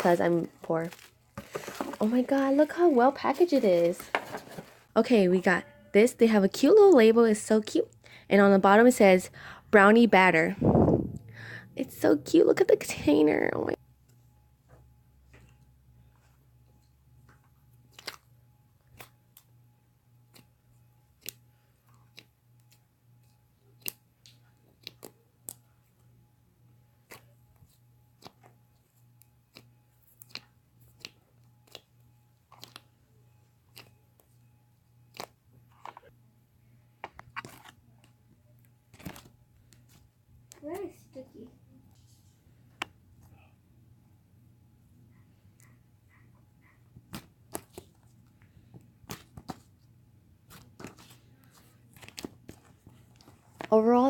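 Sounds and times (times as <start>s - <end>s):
slime squishing with pops: 20.2s - 25.7s, 27.0s - 32.9s.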